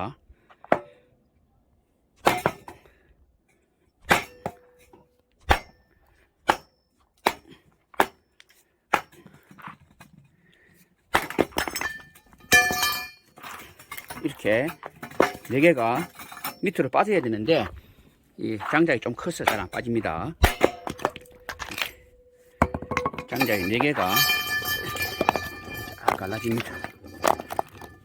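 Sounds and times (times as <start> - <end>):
clatter of ringing metal: 11.7 - 16.8, 20.5 - 28.0.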